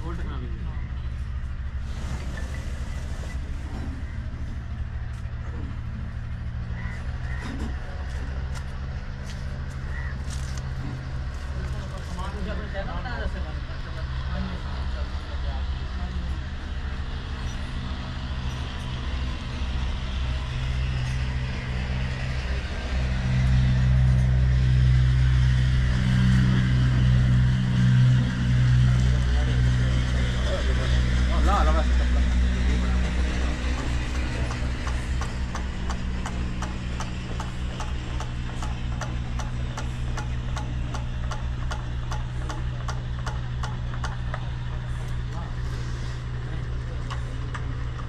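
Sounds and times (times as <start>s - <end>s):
large diesel engine running: 0.0s - 48.0s.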